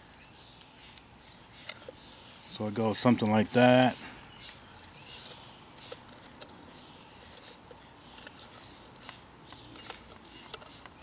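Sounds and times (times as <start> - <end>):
small metal parts clicking: 4.8 - 11.0.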